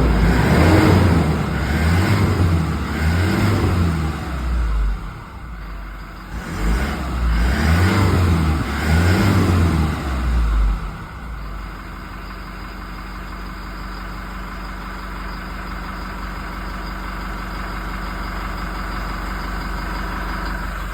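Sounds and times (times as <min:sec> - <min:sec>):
diesel engine revving and idling: 0:00.0 - 0:20.9.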